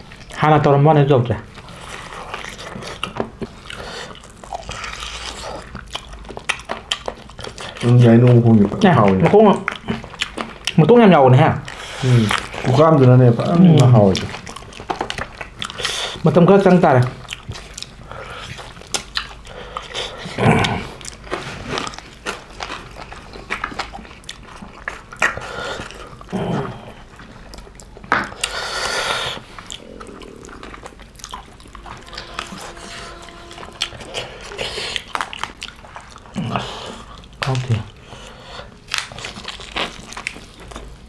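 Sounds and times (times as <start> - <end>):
wet chewing and lip-smacking: 1.4 - 16.3, 17.0 - 41.0.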